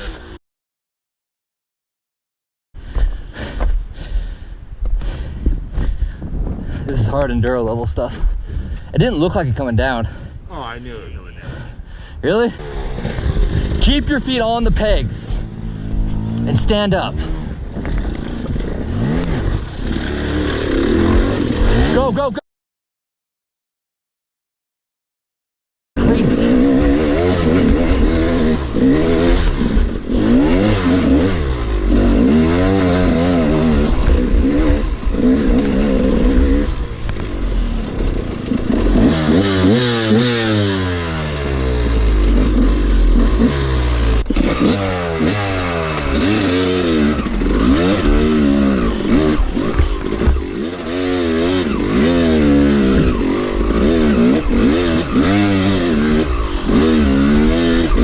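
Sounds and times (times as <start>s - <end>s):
dirt bike engine revving: 9.2s - 22.3s, 26.0s - 58.0s.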